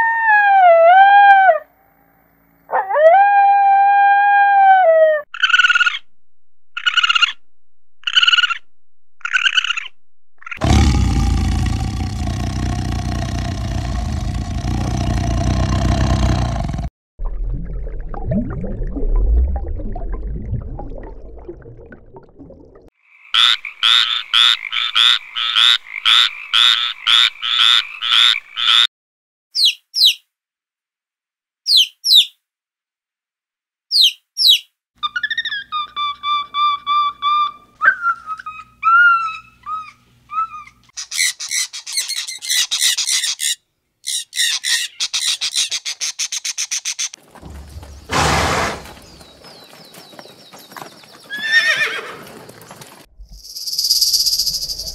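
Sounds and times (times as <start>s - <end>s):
tiger roaring: 10.6s - 16.9s, 47.4s - 49.2s
frog croaking: 23.0s - 28.9s
monkey calls: 33.9s - 47.2s.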